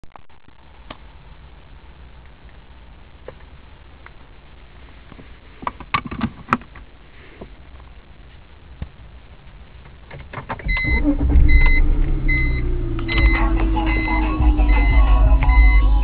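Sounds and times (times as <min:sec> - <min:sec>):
sharp clicks and knocks: 0:05.6 - 0:06.9, 0:09.8 - 0:10.9
low rumble inside car: 0:10.6 - 0:16.0.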